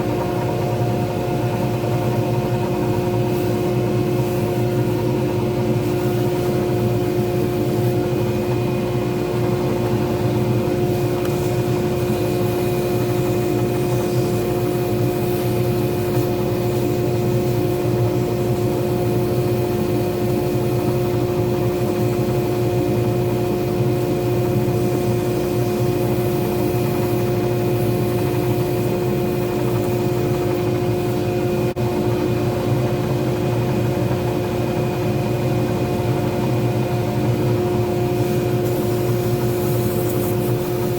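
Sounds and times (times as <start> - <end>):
lathe motor humming: 3.6 - 31.8.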